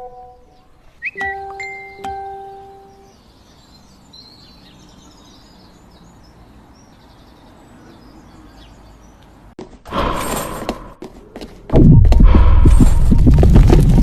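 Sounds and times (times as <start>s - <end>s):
bird chirps: 0.0s - 9.5s.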